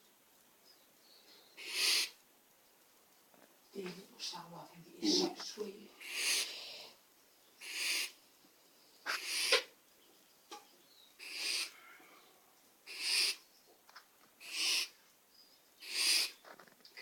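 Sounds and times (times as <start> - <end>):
baby owl hissing: 1.6 - 2.2, 5.0 - 7.0, 7.6 - 8.2, 9.0 - 9.8, 11.2 - 11.9, 12.8 - 13.5, 14.4 - 15.0, 15.8 - 16.5.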